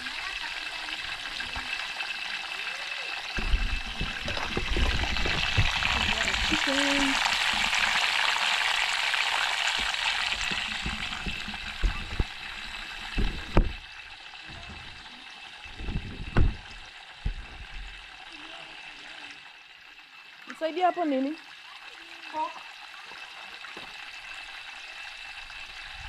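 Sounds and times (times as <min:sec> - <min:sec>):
food sizzling in hot oil: 0:00.0 - 0:26.0
dull knocks: 0:15.8 - 0:17.7.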